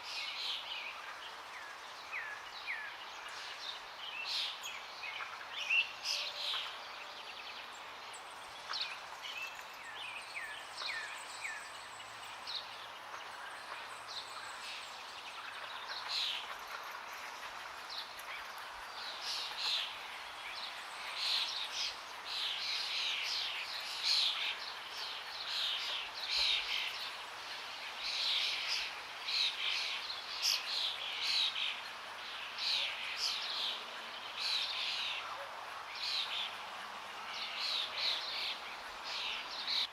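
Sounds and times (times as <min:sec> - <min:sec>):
forest birds chirping: 0:00.0 - 0:39.9.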